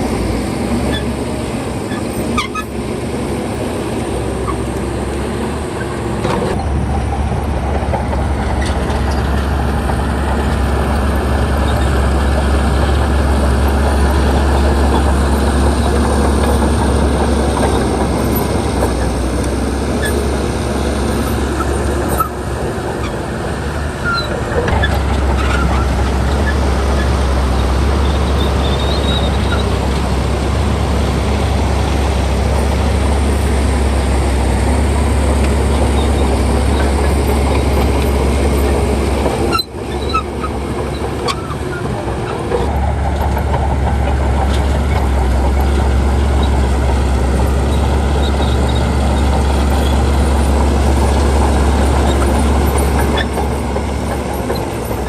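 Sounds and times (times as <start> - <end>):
diesel machinery deep rumble: 0.0 - 55.0.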